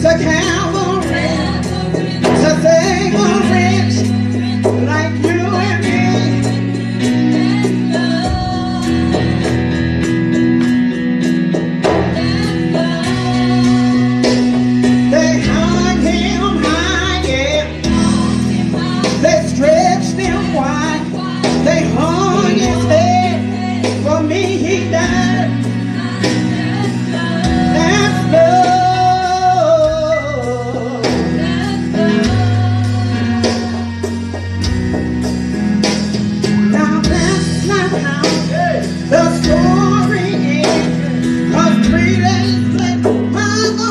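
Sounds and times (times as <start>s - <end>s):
singers singing: 0.0s - 10.2s, 11.8s - 35.0s
live band playing gospel music: 0.0s - 43.9s
steady bass line: 0.0s - 43.9s
sustained keyboard chords: 0.0s - 43.9s.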